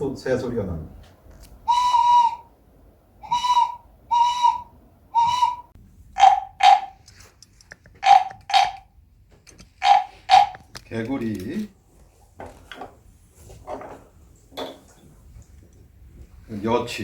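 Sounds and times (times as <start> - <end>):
bird toy whistle notes: 1.7 - 2.4, 3.2 - 7.0, 8.0 - 8.8.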